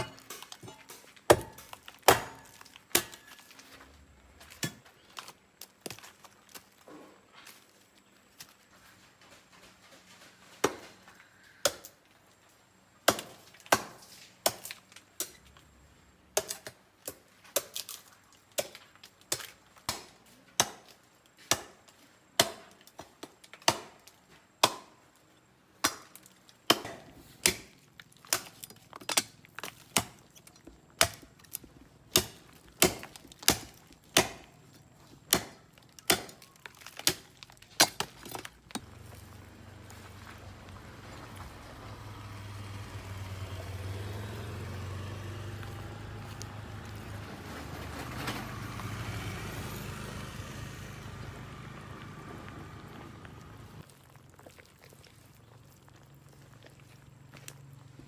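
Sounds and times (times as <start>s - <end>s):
blade chopping wood: 0.0s - 3.8s, 13.1s - 15.4s, 18.6s - 21.8s, 22.4s - 25.0s, 25.8s - 39.2s.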